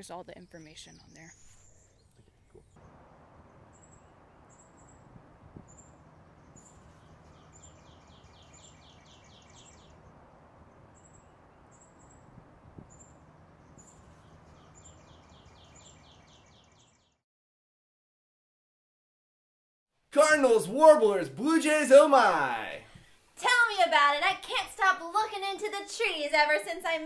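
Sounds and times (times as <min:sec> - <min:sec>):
faint birdsong chips: 0:00.6 - 0:17.1
bird trilling: 0:03.4 - 0:17.0.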